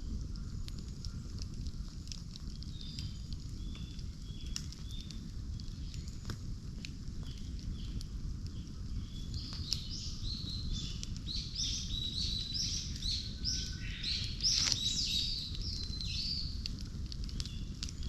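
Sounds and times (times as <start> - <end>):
steady low rumble: 0.0 - 18.0
birds chirping: 7.2 - 16.6.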